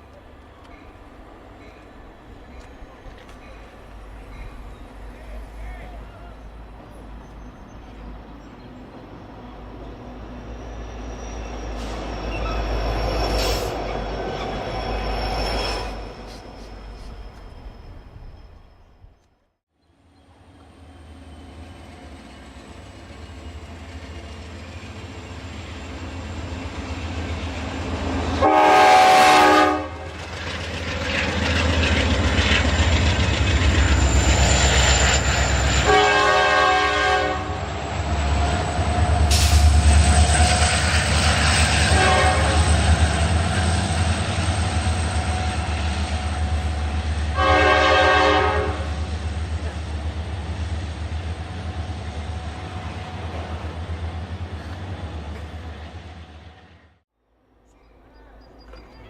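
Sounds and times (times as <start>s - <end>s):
diesel locomotive engine rumble: 0.0s - 19.2s, 19.8s - 57.0s
locomotive air horn: 28.4s - 30.2s, 35.7s - 37.8s, 41.8s - 42.8s, 47.4s - 49.0s.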